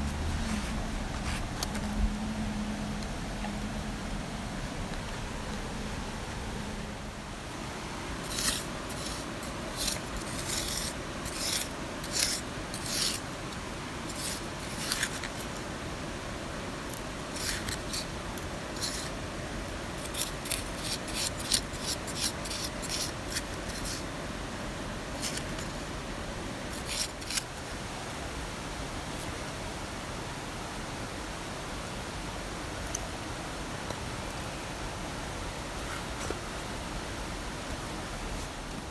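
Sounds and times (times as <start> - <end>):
scraping strokes: 0.0 - 2.1, 8.2 - 13.3, 14.0 - 15.6, 17.3 - 19.2, 20.0 - 24.1, 26.7 - 27.5.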